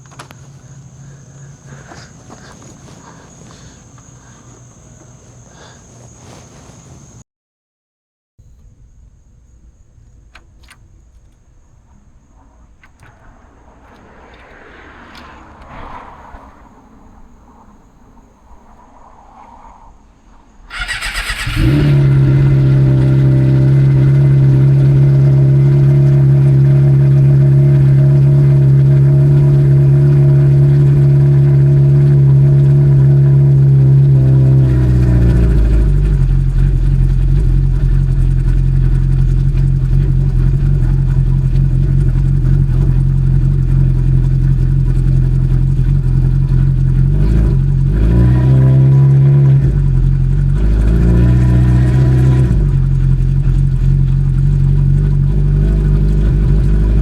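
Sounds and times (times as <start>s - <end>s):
motorcycle engine idling: 0.0s - 6.4s, 20.7s - 57.0s
motorcycle engine starting: 0.0s - 6.6s, 9.7s - 18.6s, 20.6s - 57.0s.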